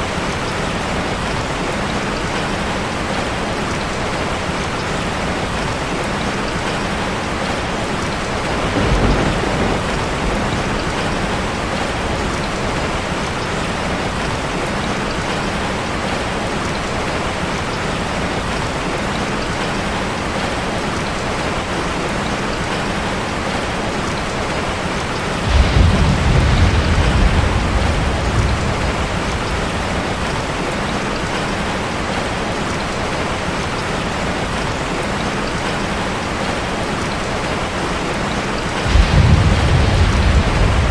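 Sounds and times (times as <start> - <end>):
heavy rain on a metal roof: 0.0 - 40.9
thunder rumbling: 8.4 - 13.2, 25.4 - 31.4, 38.7 - 40.9.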